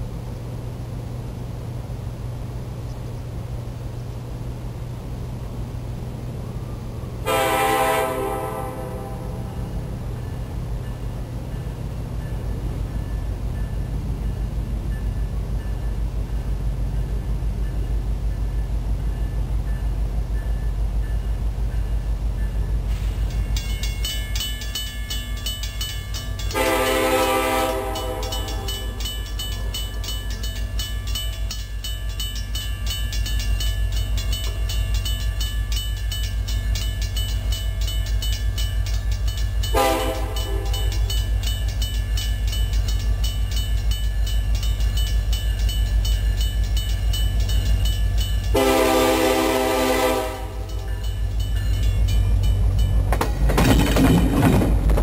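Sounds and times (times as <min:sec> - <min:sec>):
diesel locomotive rumbling: 0:00.0 - 0:55.0
air horn blasts: 0:07.3 - 0:09.5, 0:26.6 - 0:28.7, 0:39.7 - 0:40.8, 0:48.6 - 0:50.7.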